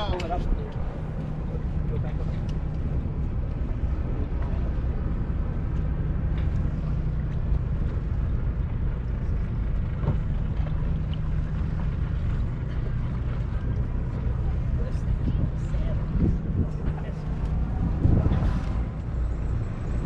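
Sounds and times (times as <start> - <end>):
boat engine droning: 0.0 - 20.0
wind and water rushing: 0.0 - 20.0.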